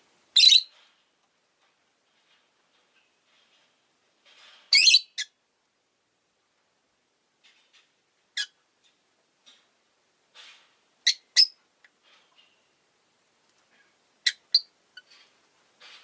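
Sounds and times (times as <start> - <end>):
lovebird chirping: 0.4 - 0.7, 4.7 - 5.3, 11.0 - 11.6, 14.2 - 15.2.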